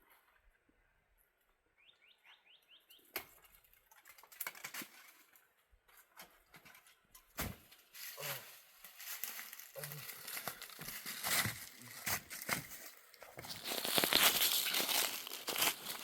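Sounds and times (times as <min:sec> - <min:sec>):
small bird chirping: 0:01.8 - 0:03.1
rustling and crackling from handling: 0:07.8 - 0:16.0.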